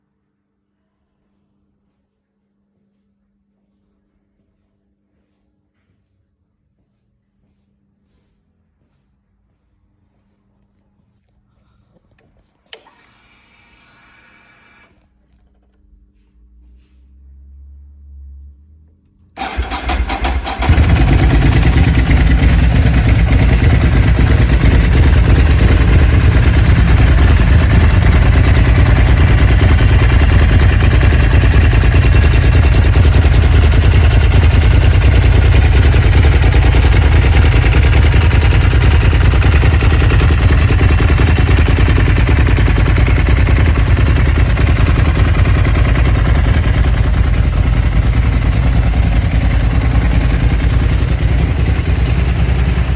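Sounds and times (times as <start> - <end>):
motorcycle engine starting and running: 19.4 - 52.9.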